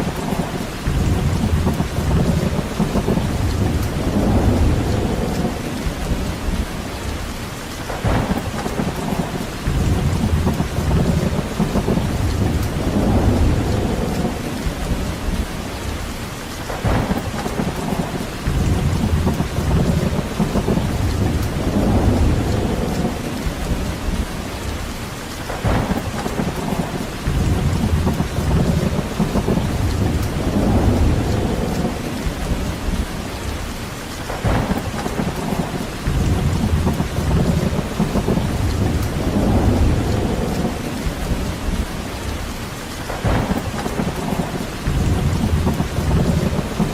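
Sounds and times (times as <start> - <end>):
steady rain: 0.0 - 46.9
wind through trees: 0.0 - 46.9.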